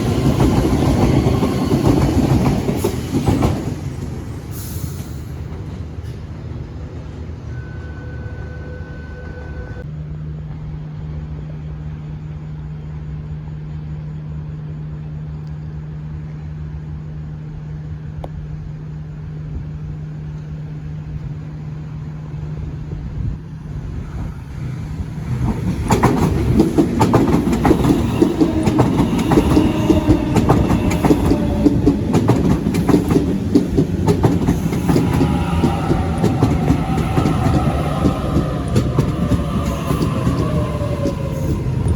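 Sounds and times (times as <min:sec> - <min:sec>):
train motor whine: 0:00.0 - 0:10.6, 0:18.8 - 0:41.9
train wheels clattering over rail joints: 0:25.1 - 0:41.9.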